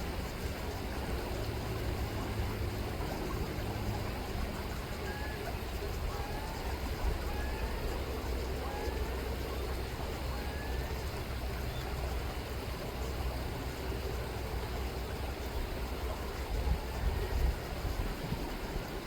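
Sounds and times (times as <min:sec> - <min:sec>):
river water running: 0:00.0 - 0:19.0
faint gull calls: 0:04.6 - 0:12.2.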